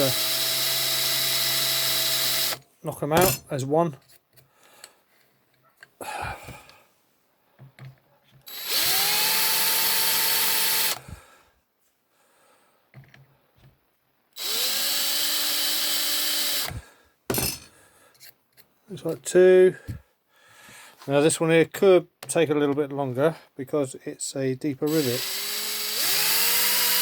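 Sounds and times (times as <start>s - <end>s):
electric drill whining: 0.0s - 2.6s, 8.5s - 11.2s, 14.4s - 16.8s, 24.9s - 27.0s.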